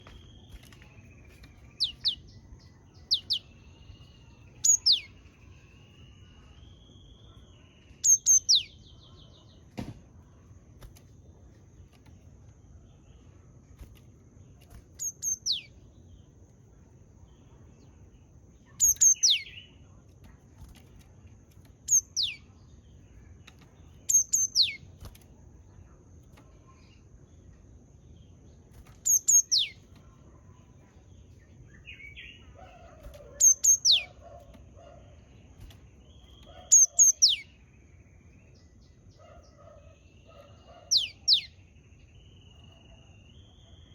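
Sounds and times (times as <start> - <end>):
bird singing whistled notes: 0.0 - 9.5, 15.0 - 15.8, 18.7 - 19.8, 21.8 - 22.6, 24.0 - 24.9, 28.8 - 29.8, 31.6 - 34.2, 36.1 - 38.8, 40.8 - 43.9
faint wavering background call: 0.0 - 11.9, 12.5 - 43.9.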